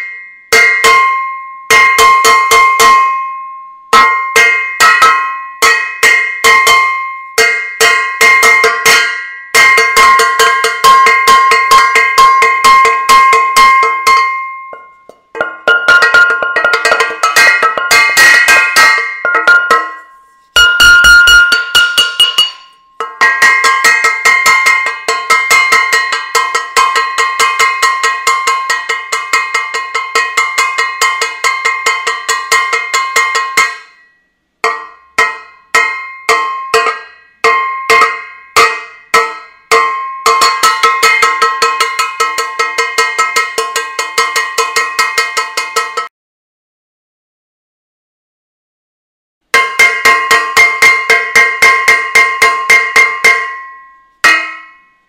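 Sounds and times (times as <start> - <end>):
metal saucepan clanging: 4.0 - 33.9.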